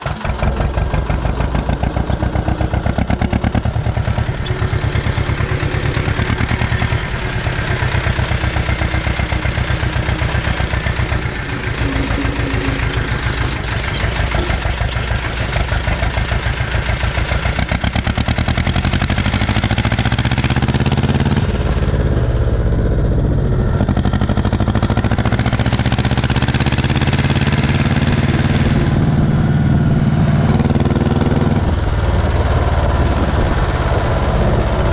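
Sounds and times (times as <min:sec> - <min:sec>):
diesel tractor engine running: 0:00.0 - 0:34.9.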